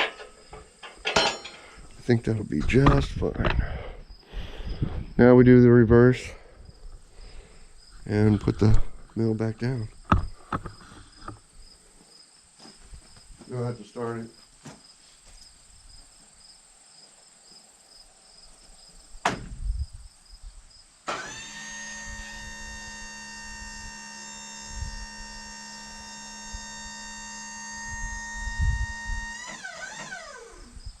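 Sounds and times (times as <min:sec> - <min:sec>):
faint crickets chirping: 0:00.0 - 0:31.0
sharp knock: 0:19.2 - 0:19.6
hydraulic pump motor humming: 0:21.1 - 0:30.7.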